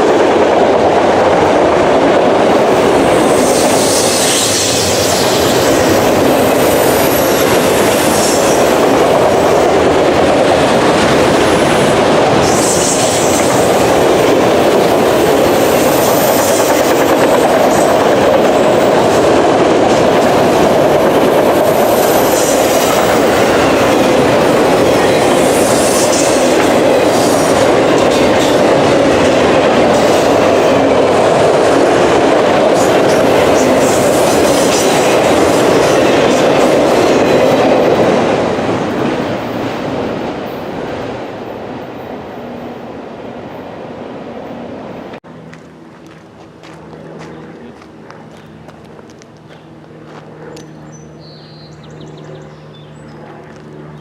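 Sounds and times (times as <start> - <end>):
train wheels rumbling on rail: 0.0 - 51.1
train wheel squeals: 3.3 - 8.6, 21.6 - 23.4.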